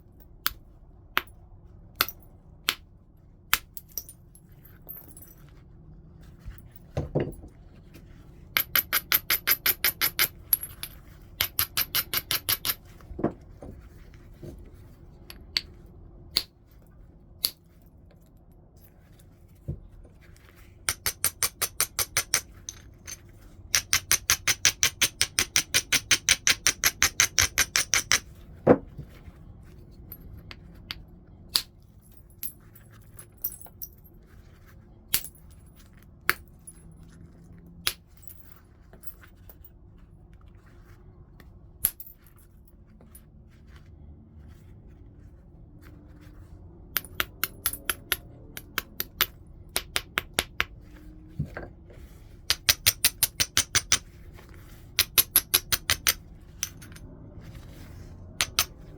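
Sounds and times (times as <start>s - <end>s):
tool clicking against stone: 23.7s - 28.3s, 52.5s - 54.0s, 55.0s - 56.8s.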